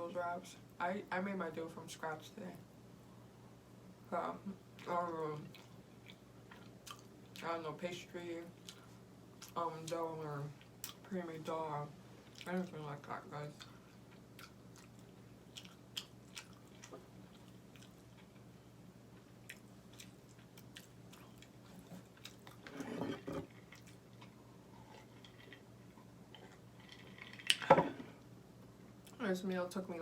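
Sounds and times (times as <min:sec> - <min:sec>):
person chewing food: 0:04.8 - 0:07.4, 0:08.6 - 0:09.6, 0:12.2 - 0:12.5, 0:13.6 - 0:27.7.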